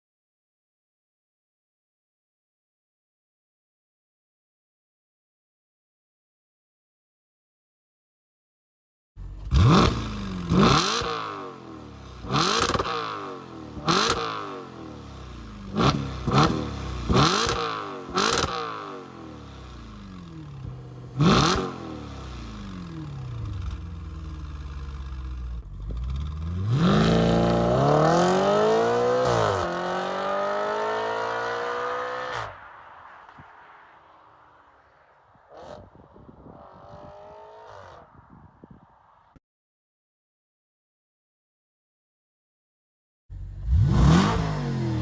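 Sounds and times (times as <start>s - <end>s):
car engine idling: 9.2s - 10.6s, 22.5s - 26.7s, 43.3s - 45.0s
car engine throttle blips: 9.2s - 11.0s, 20.9s - 29.8s, 43.3s - 45.0s
car engine revving: 9.2s - 32.8s, 43.3s - 45.0s.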